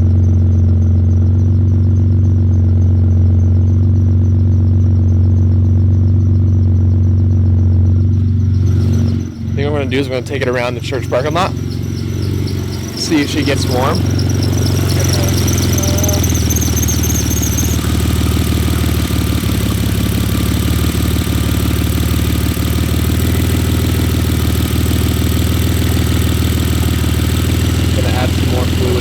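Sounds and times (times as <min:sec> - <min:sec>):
car engine misfiring: 0:00.0 - 0:29.0
high warbling squeal: 0:07.9 - 0:29.0.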